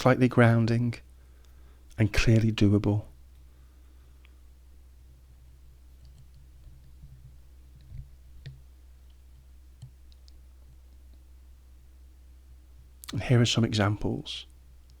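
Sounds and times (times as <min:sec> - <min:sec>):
steady low hum: 0:00.0 - 0:15.0
faint clicks: 0:07.8 - 0:11.2.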